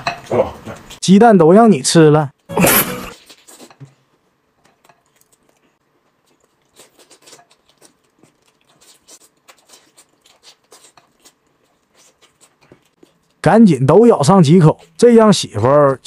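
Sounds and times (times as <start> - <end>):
chewing and biting chicken: 4.8 - 13.4.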